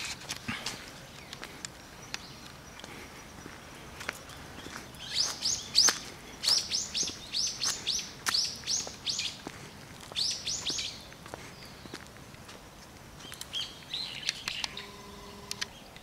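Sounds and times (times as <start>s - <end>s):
bird high chirps: 4.2s - 9.4s, 10.1s - 12.0s, 13.2s - 16.0s.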